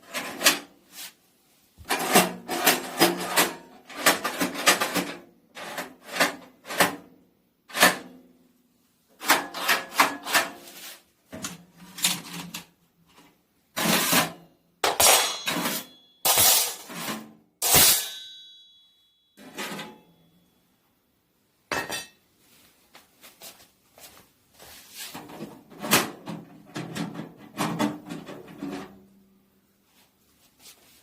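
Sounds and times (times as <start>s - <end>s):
metallic clangs: 14.8s - 20.3s.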